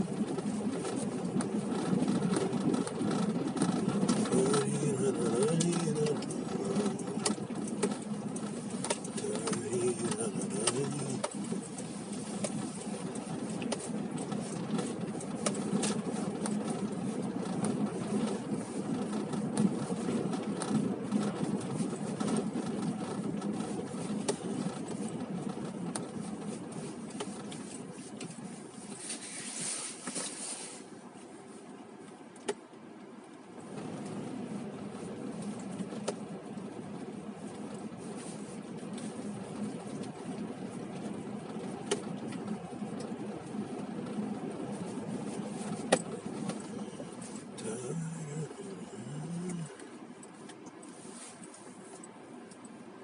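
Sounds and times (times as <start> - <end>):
cars passing: 0.0 - 22.4, 43.5 - 50.2.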